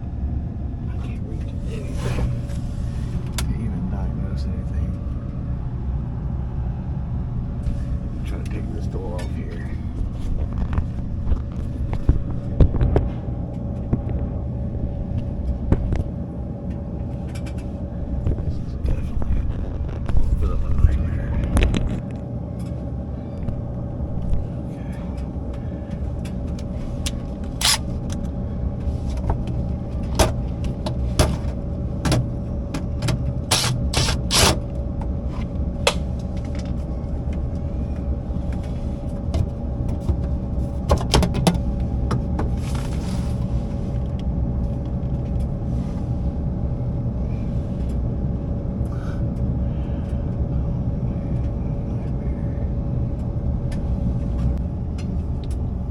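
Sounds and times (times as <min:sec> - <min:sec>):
low machine rumble: 0:00.0 - 0:55.9
metal panel clicks and knocks: 0:40.9 - 0:42.5.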